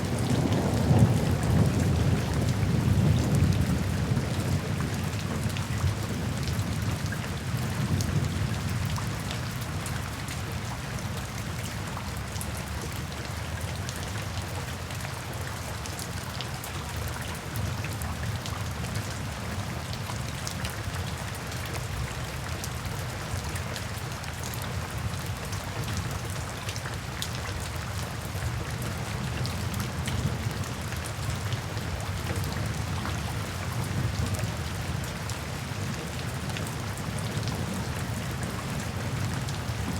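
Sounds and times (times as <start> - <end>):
low rumble of thunder: 0.0 - 9.8
steady rain falling: 0.0 - 39.9.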